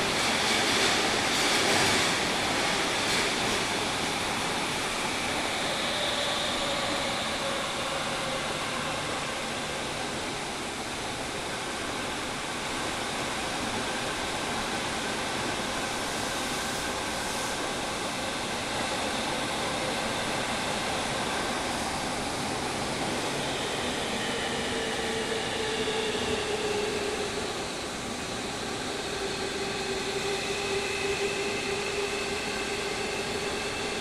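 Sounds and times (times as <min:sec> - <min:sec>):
air conditioning fans: 0:00.0 - 0:34.0
train interior rumble: 0:00.0 - 0:34.0.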